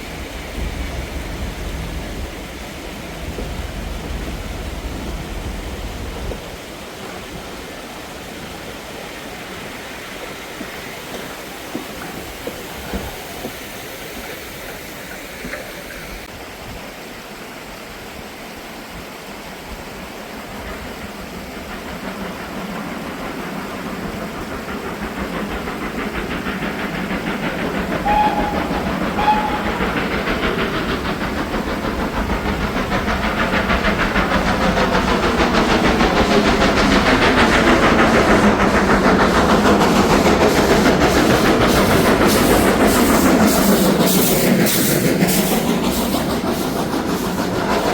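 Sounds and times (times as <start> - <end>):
steam train approaching: 0.0 - 47.9
train whistle toots: 27.9 - 30.6.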